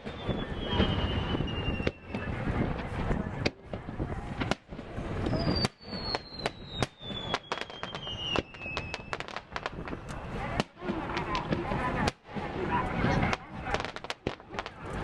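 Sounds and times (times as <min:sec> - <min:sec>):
high falling whistle: 0:00.0 - 0:02.6
fireworks bangs and crackles: 0:00.0 - 0:15.0.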